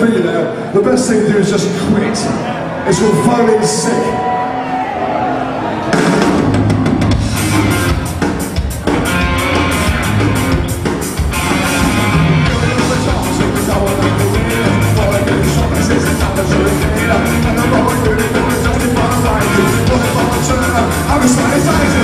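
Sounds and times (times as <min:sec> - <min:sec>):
electric guitar: 0:04.7 - 0:22.0
bass guitar: 0:05.8 - 0:22.0
drums with fast beat: 0:05.9 - 0:22.0
person singing: 0:12.4 - 0:22.0.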